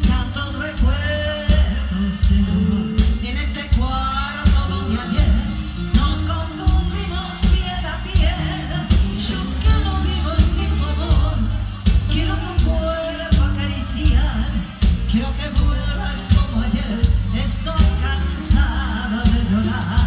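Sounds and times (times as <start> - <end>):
live pop band music: 0.0 - 20.0.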